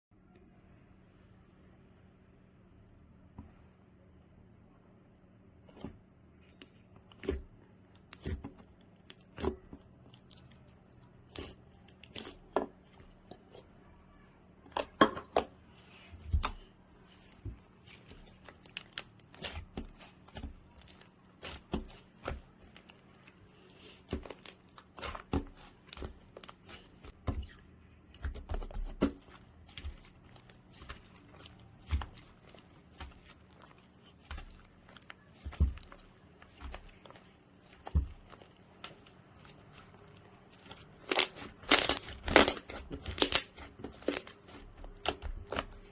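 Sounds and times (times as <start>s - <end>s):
sticky slime pops and crackles: 41.0s - 45.7s.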